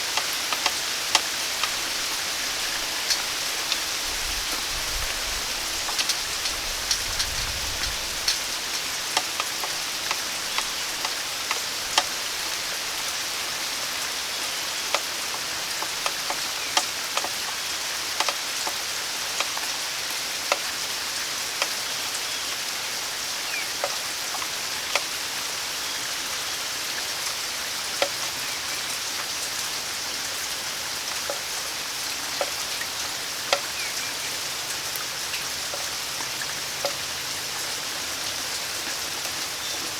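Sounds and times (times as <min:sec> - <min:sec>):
rain hissing: 0:00.0 - 0:39.9
raindrops hitting: 0:00.0 - 0:39.9.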